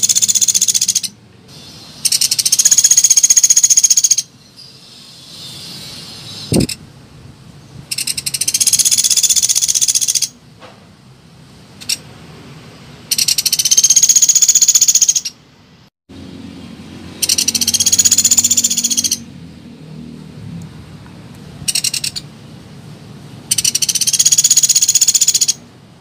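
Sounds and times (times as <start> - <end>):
woodpecker rattling trills: 0.0 - 1.2, 2.0 - 4.3, 7.9 - 10.4, 13.1 - 15.4, 17.2 - 19.3, 21.7 - 22.2, 23.5 - 25.6.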